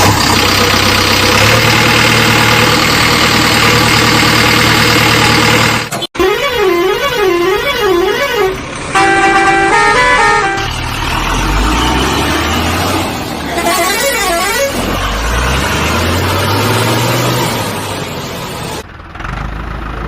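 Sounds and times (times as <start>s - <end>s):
horn playing stepped tune: 6.2s - 10.8s
warbling vehicle horn: 6.2s - 10.8s, 13.5s - 14.8s.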